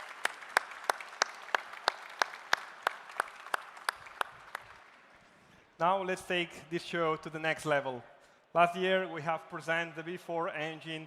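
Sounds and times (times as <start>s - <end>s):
audience applauding: 0.0s - 5.1s
rhythmic sharp claps: 0.0s - 5.2s.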